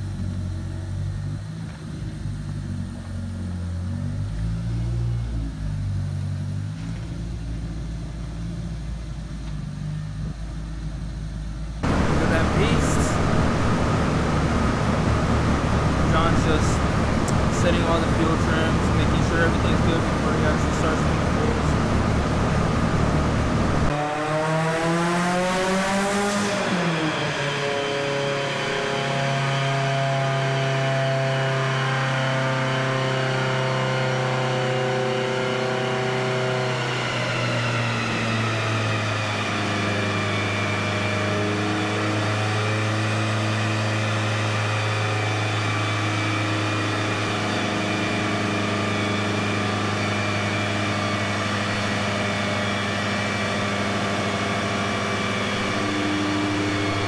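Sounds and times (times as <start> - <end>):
rush of noise: 11.8 - 28.3, 45.2 - 57.0
car engine revving: 11.8 - 57.0.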